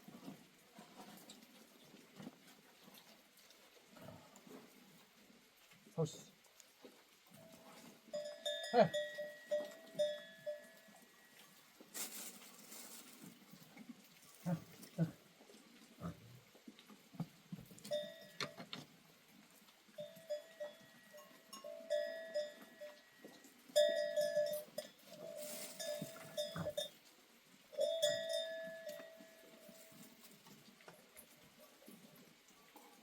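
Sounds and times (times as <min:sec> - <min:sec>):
goat bells clanking: 0:07.4 - 0:11.7, 0:17.8 - 0:18.9, 0:19.9 - 0:27.0, 0:27.7 - 0:31.9.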